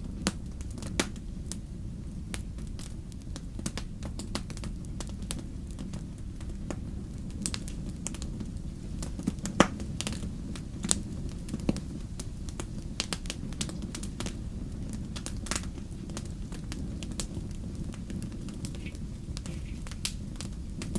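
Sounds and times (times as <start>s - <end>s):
fireplace fire crackling: 0.0s - 20.9s
low rumble of burning: 0.0s - 20.9s.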